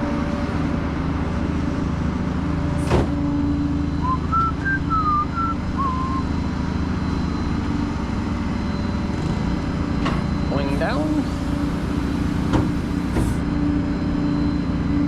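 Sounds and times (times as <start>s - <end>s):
truck engine and road noise: 0.0s - 15.0s
high chirps: 4.0s - 6.5s.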